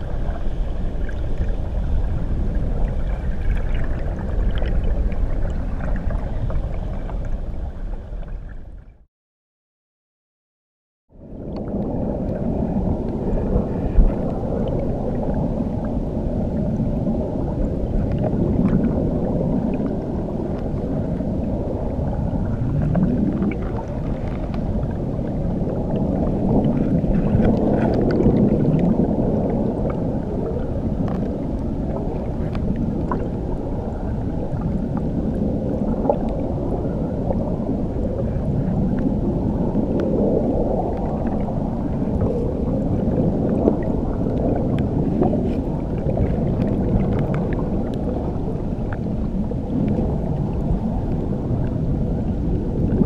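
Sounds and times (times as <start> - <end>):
muffled underwater waterfall rumble: 0.0 - 9.1, 11.1 - 53.0
faint bubble ticks: 11.4 - 13.2, 43.4 - 48.1.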